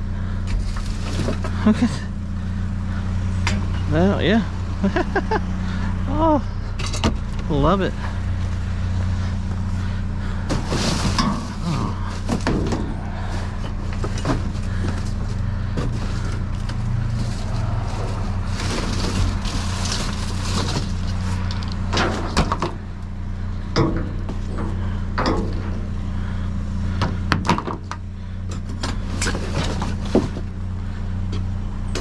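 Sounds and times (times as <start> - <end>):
vehicle engine idling: 0.0 - 32.0
objects knocking and rattling: 10.5 - 22.8.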